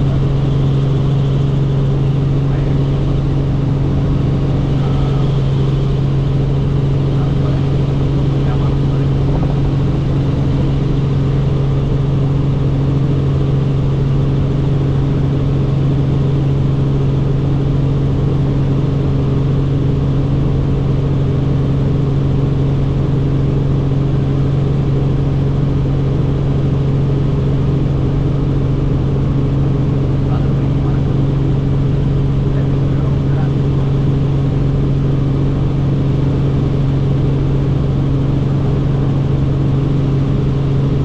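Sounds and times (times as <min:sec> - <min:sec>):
helicopter engine and rotor drone: 0:00.0 - 0:41.0.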